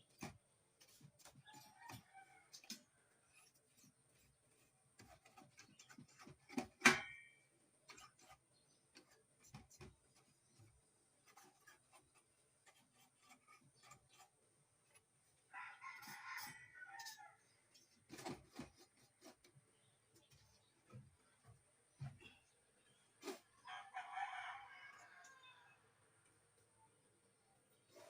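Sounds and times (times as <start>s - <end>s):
rooster crowing: 15.5s - 17.4s, 23.6s - 25.9s.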